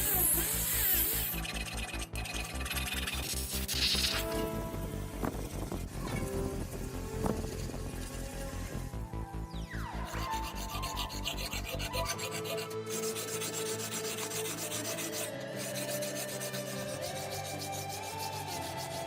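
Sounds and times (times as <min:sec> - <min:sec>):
abrasive rubbing by hand: 0:10.0 - 0:19.0.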